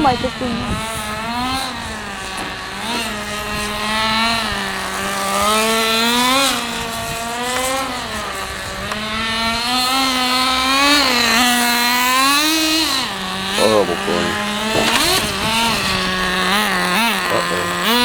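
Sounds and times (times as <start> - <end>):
small two-stroke engine revving: 0.0 - 18.0.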